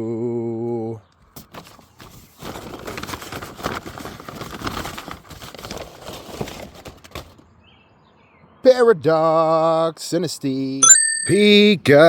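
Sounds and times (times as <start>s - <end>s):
plastic wrapper crinkling: 2.4s - 7.2s.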